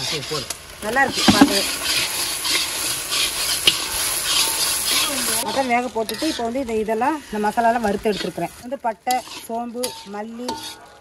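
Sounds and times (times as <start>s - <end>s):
spices sizzling in oil: 0.0s - 11.0s
person speaking: 1.0s - 1.8s
metal ladle scraping pan: 1.0s - 6.5s, 7.9s - 11.0s.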